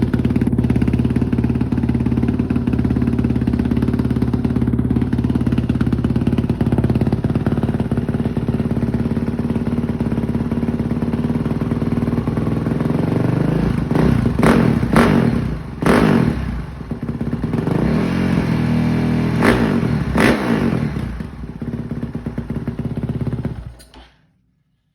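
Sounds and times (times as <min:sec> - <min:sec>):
motorcycle throttle revs: 0:00.0 - 0:23.8
motorcycle engine idling: 0:00.0 - 0:24.0.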